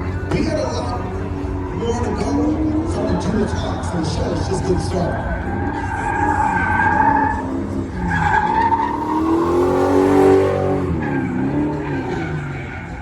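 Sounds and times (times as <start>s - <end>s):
car engine revving hard: 5.8s - 13.0s.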